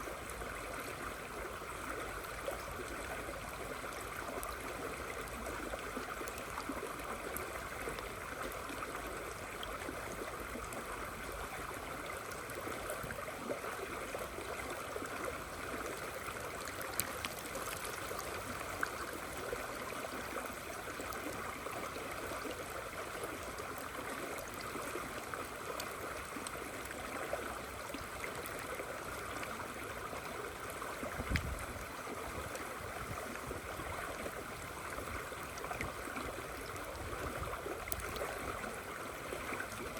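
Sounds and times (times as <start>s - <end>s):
river water rushing: 10.9s - 39.9s.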